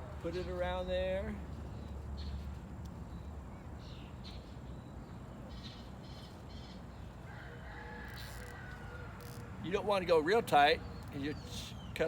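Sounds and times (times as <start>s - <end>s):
outdoor background noise: 0.0s - 12.0s
rooster crowing: 7.3s - 9.4s.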